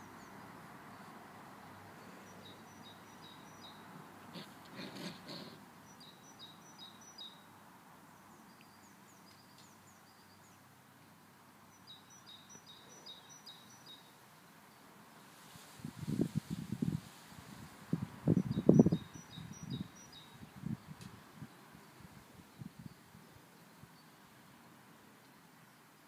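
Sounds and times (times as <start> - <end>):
small bird chirping faintly: 0.0 - 15.6, 18.3 - 26.0
soft rustle: 15.1 - 18.2.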